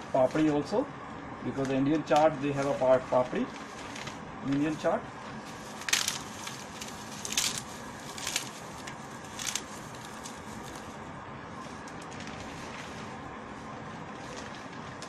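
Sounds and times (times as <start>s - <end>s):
steady background hiss: 0.0s - 15.0s
crisp wafers crunching: 5.5s - 10.9s.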